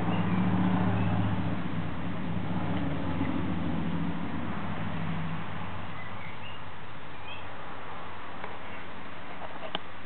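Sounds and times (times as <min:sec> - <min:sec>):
low motor drone: 0:00.0 - 0:06.0
constant hiss: 0:01.5 - 0:10.0.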